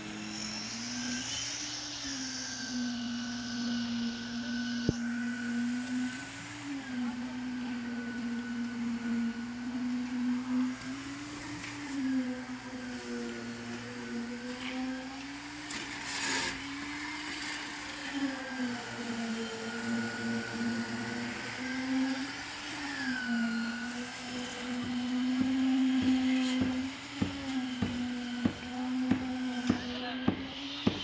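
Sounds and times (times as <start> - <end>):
machinery whine: 0.0 - 31.0
sharp knocks: 25.4 - 31.0.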